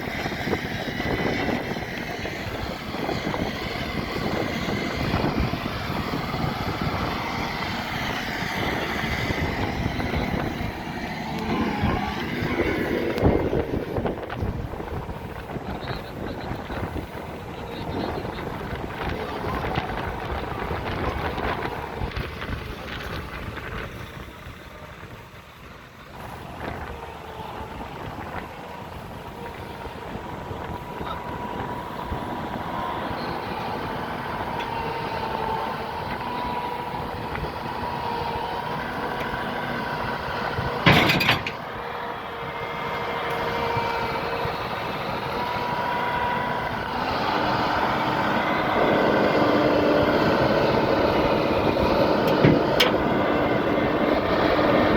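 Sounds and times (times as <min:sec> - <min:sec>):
heavy truck engine and road noise: 0:00.0 - 0:54.9.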